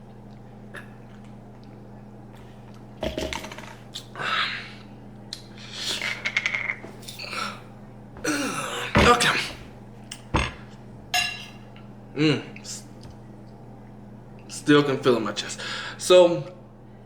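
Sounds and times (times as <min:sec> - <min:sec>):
person clearing throat: 0:03.0 - 0:03.8, 0:08.2 - 0:09.7.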